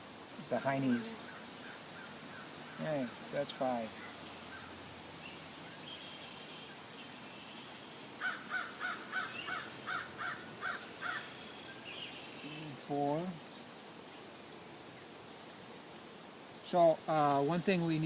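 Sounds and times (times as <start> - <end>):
bird calling: 0.0 - 13.8
faint bird chirps: 3.8 - 13.8.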